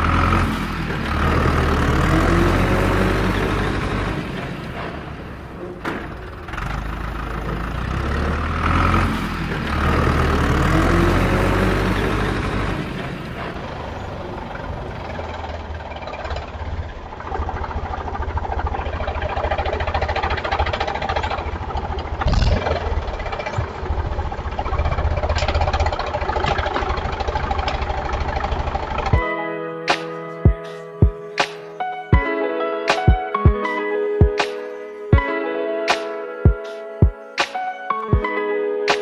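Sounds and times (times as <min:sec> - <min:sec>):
engine rumbling: 0:00.0 - 0:29.3
plucked guitar tune: 0:29.0 - 0:39.0.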